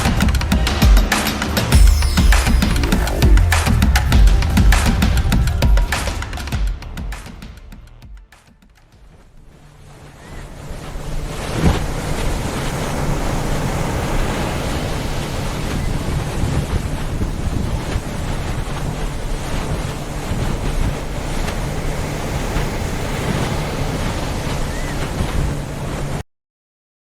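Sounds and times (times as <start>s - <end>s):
boat engine hum: 0.0s - 26.2s
water noise: 0.0s - 26.2s
wind on microphone: 9.0s - 26.2s.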